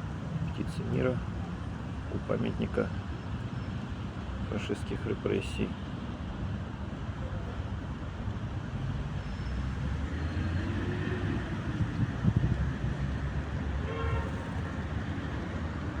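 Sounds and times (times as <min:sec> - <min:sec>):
traffic rumble: 0:00.0 - 0:16.0
vehicle horn toot: 0:13.8 - 0:14.4.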